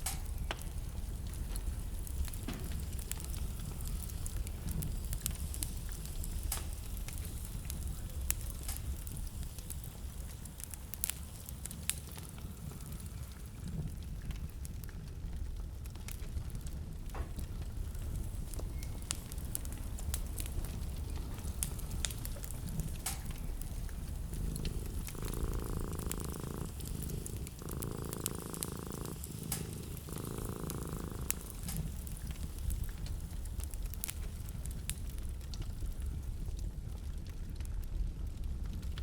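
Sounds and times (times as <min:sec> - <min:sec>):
low rhythmic purr: 0:00.0 - 0:39.0
sharp pops from fire: 0:00.0 - 0:39.0
wood fire crackling: 0:00.0 - 0:39.0
low rumble: 0:17.0 - 0:34.0.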